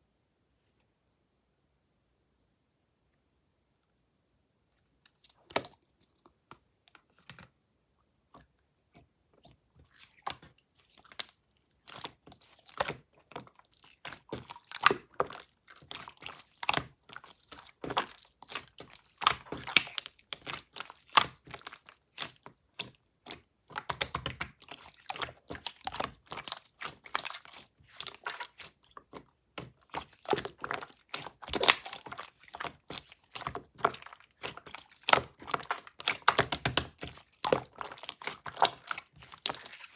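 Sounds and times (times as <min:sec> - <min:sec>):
slime crackling and popping: 0:12.0 - 0:39.9.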